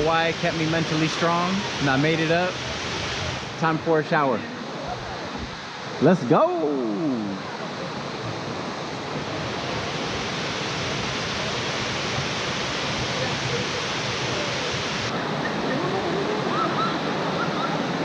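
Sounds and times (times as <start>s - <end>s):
faint voices: 13.0s - 18.0s.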